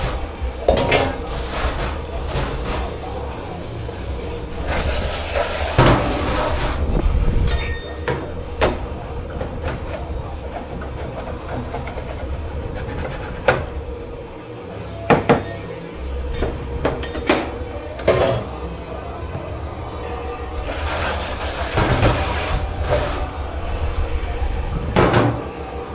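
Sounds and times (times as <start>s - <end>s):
crockery and pans clanking: 0.0s - 14.0s, 15.0s - 25.9s
low rumble of kitchen machinery: 0.0s - 25.9s
hissing rush: 18.6s - 25.9s.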